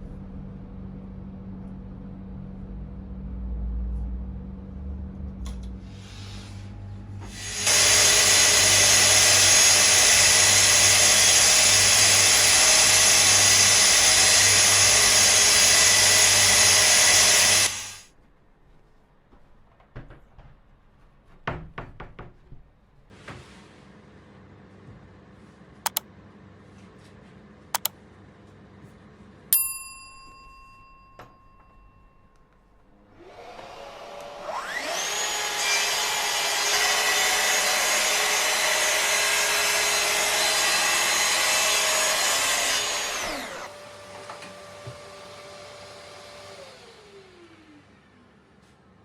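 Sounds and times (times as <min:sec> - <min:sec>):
track saw cutting board: 0:07.2 - 0:18.1, 0:33.2 - 0:47.9
ringing metallic ding: 0:29.6 - 0:32.5.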